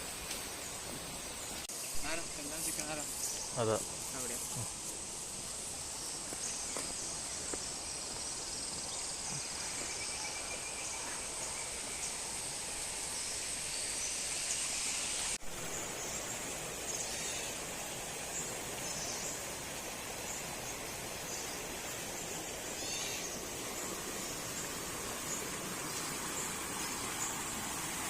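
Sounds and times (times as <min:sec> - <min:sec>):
high-pitched insect chorus: 0:00.0 - 0:28.0
flowing water rushing: 0:11.0 - 0:28.0.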